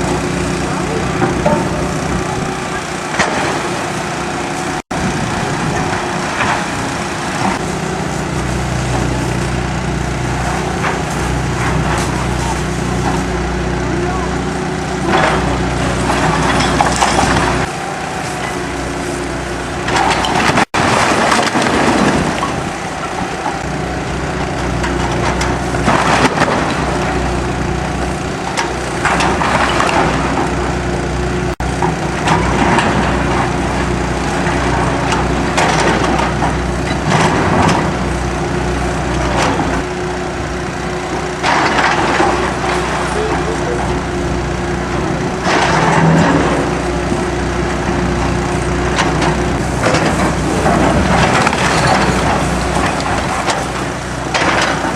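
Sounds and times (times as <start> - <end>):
demolition machine engine running: 0.0 - 54.9
wood cracking and splintering: 15.0 - 31.1.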